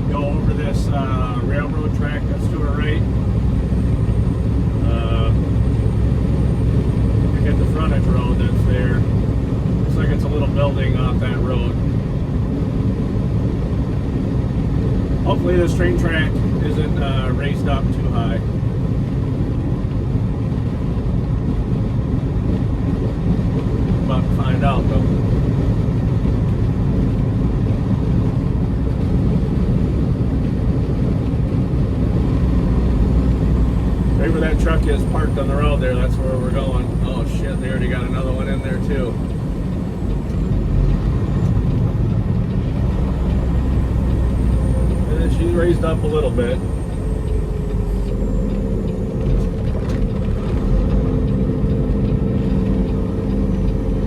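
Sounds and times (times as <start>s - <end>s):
truck diesel engine rumble: 0.0s - 54.0s.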